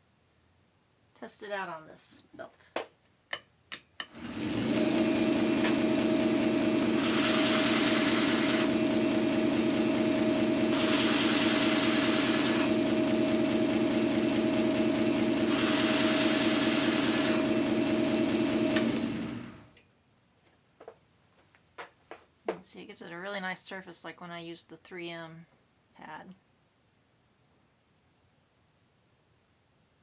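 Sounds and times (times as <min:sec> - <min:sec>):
metal grinding on sander belt: 0:04.1 - 0:19.6
motor winding down: 0:04.1 - 0:19.7
belt sander humming: 0:04.1 - 0:19.8.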